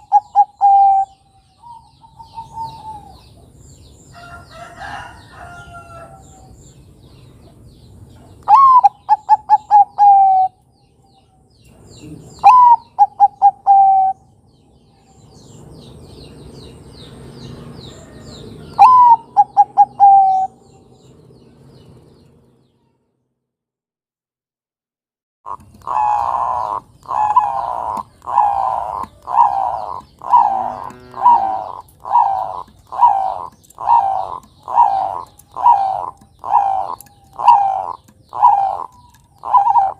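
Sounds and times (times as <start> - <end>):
dove cooing: 0.0 - 3.5, 8.4 - 10.6, 12.0 - 14.3, 17.9 - 20.8, 25.5 - 39.9
small birds chirping: 0.0 - 23.2, 25.5 - 39.9.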